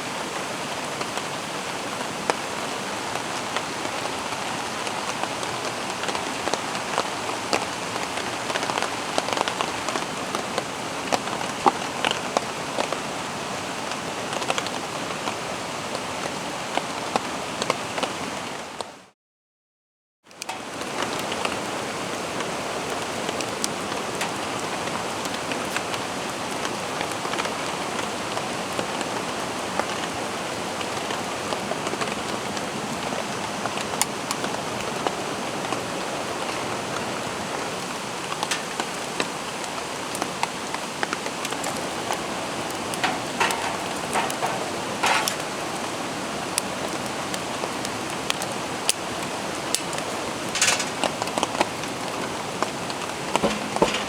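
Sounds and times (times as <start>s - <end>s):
steady rain: 0.0s - 19.1s, 20.3s - 54.0s
drops ticking on a surface: 38.4s - 39.2s, 42.8s - 45.5s, 53.4s - 54.0s.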